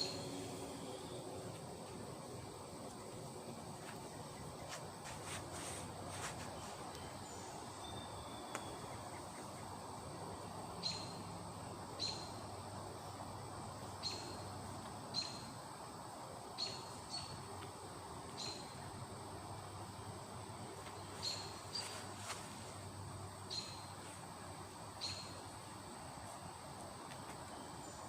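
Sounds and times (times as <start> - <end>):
bird chirping: 0.0 - 1.4, 6.5 - 9.7, 10.4 - 11.3, 12.0 - 12.4, 14.0 - 14.5, 20.9 - 22.2, 23.4 - 23.9, 25.0 - 25.5
steady background hiss: 0.0 - 28.0.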